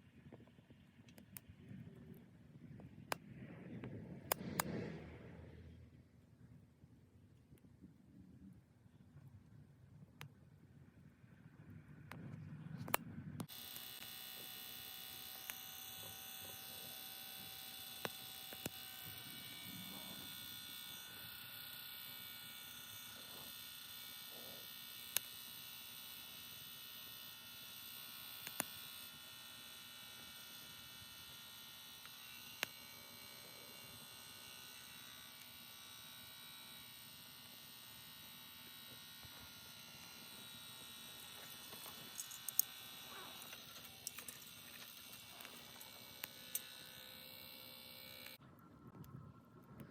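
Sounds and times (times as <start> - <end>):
fan blower humming: 12.5 - 25.5.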